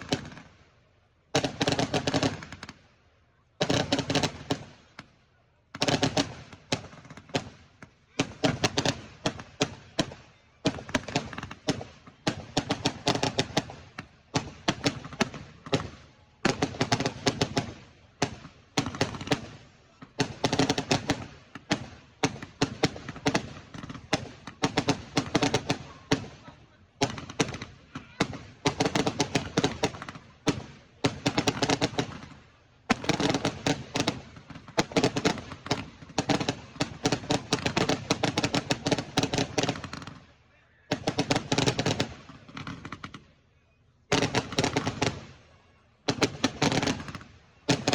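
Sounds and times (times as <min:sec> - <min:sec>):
fireworks crackling bangs: 0:00.0 - 0:00.5, 0:01.3 - 0:02.9, 0:03.6 - 0:40.3, 0:40.9 - 0:43.2, 0:44.1 - 0:47.9.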